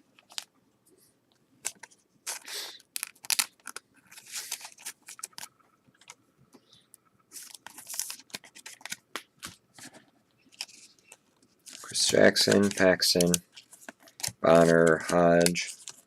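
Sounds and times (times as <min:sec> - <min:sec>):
card pack wrapper tearing: 0:01.6 - 0:05.5, 0:07.4 - 0:09.6, 0:11.7 - 0:16.0
cards sliding and snapping: 0:01.6 - 0:05.5.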